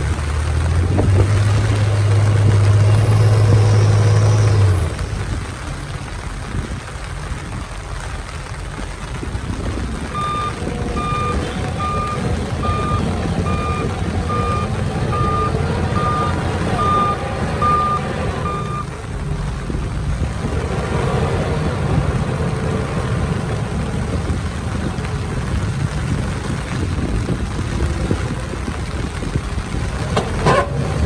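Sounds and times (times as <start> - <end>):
vehicle engine rumbling: 0.0 - 31.0
reversing alarm beeps: 10.2 - 18.9.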